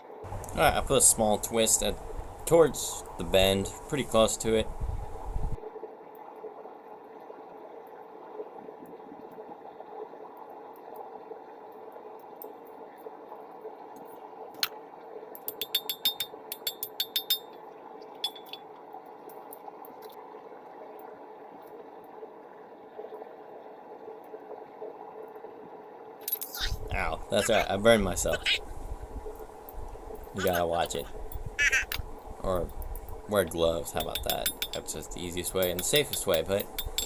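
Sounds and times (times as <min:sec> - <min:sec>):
forge burner hissing and humming: 0:00.2 - 0:05.6
light metallic clinks: 0:33.9 - 0:37.0.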